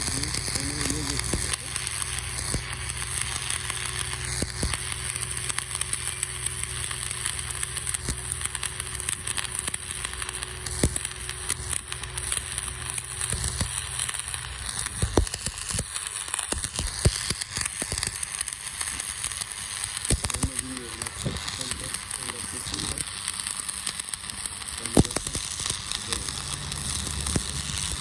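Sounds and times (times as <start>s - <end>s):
low hum: 0.0s - 15.8s
welding arc crackling and popping: 0.0s - 28.0s.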